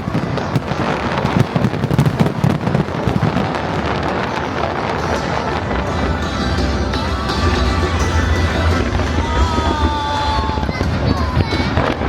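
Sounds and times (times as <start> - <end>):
fireworks crackling and popping: 0.0 - 5.8, 8.6 - 12.0.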